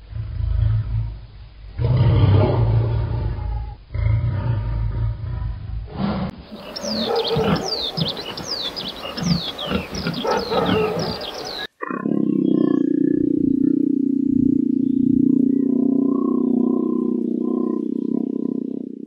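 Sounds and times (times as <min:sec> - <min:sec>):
leopard growling: 0:00.0 - 0:19.0
pigs grunting: 0:01.8 - 0:19.0
small birds chirping: 0:06.5 - 0:19.0.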